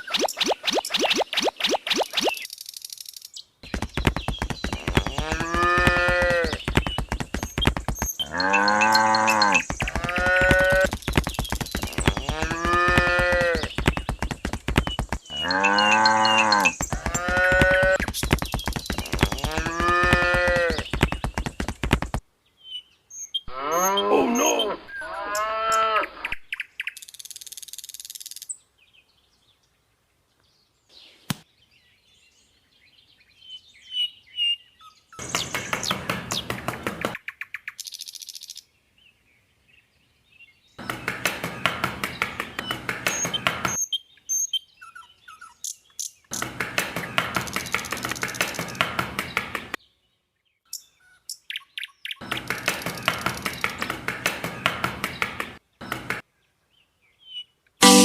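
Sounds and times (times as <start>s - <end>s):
cattle mooing: 5.0s - 6.6s, 8.2s - 10.9s, 12.2s - 13.7s, 15.3s - 18.0s, 23.5s - 26.0s.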